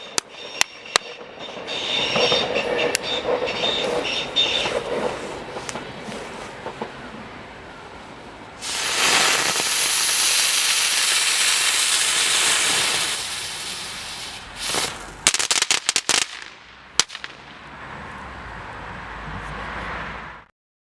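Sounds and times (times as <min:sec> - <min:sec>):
firework spinning with a hiss: 0:08.6 - 0:16.5
firework cracks: 0:08.6 - 0:17.7.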